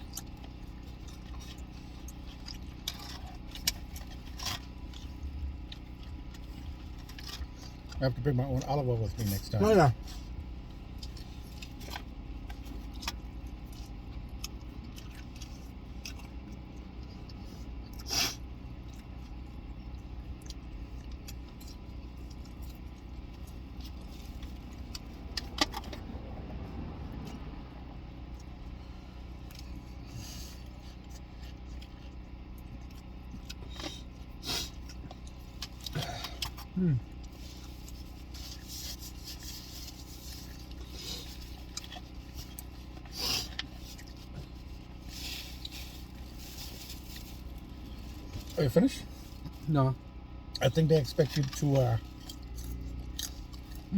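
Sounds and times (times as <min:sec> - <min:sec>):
car interior hum: 0:00.0 - 0:53.9
rustling of takeout containers: 0:29.7 - 0:53.9.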